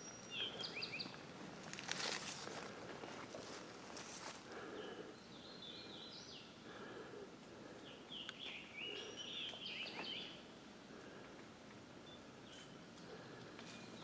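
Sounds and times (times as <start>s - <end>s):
footsteps on trail: 0.4s - 4.8s.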